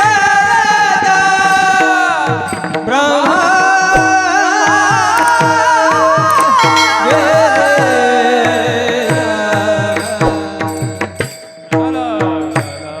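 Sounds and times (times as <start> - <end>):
held chords: 0.0 - 13.0
person singing: 0.0 - 13.0
hand drum beating: 1.0 - 13.0
sharp metallic clicks: 2.5 - 11.4.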